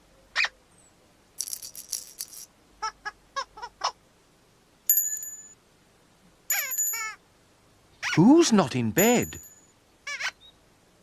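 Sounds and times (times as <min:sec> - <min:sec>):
jingly rattling shake: 0:01.4 - 0:02.5, 0:06.5 - 0:07.2.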